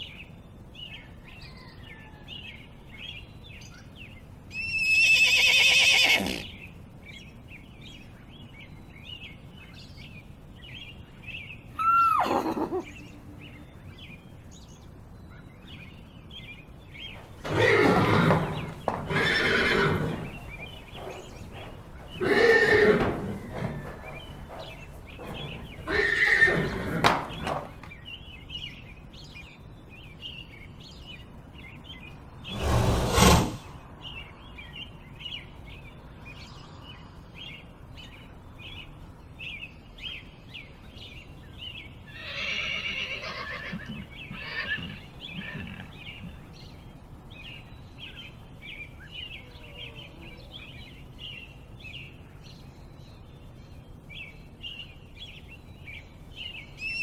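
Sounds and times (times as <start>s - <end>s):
horse calls: 4.6s - 6.5s, 11.8s - 13.0s, 17.2s - 27.9s, 42.2s - 46.4s
loud short burst of noise: 32.5s - 33.8s.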